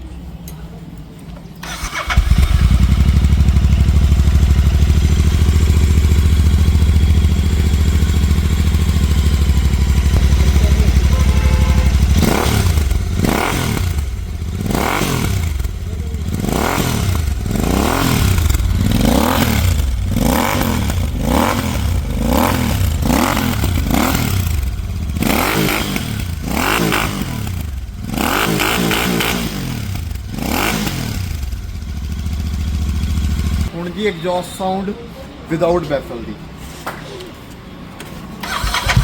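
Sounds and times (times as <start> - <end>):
motorcycle engine revving: 1.6 - 33.8, 38.4 - 39.0
motorcycle engine idling: 1.7 - 28.2, 29.7 - 33.8.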